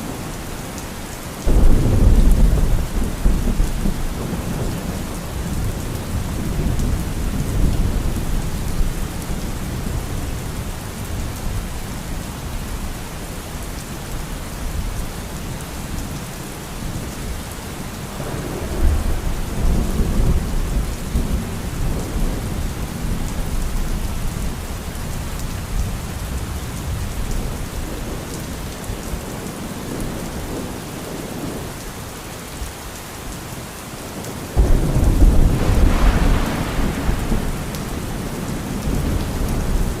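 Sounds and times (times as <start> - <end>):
steady rain: 0.0 - 40.0
rolling thunder: 1.4 - 10.3, 18.2 - 24.0, 34.6 - 40.0.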